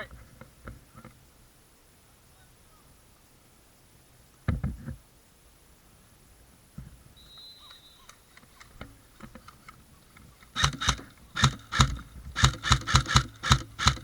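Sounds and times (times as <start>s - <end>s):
airsoft gun shots: 10.5s - 14.0s.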